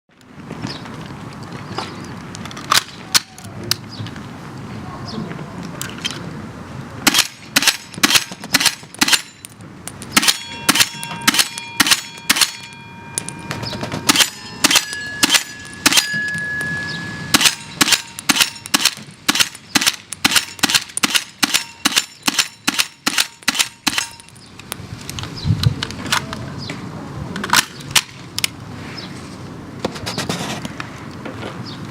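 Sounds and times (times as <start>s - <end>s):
airsoft gun shots: 7.0s - 9.3s, 10.1s - 12.7s, 13.7s - 16.2s, 17.3s - 24.1s
metallic ringing of cartridges landing: 7.1s - 24.5s.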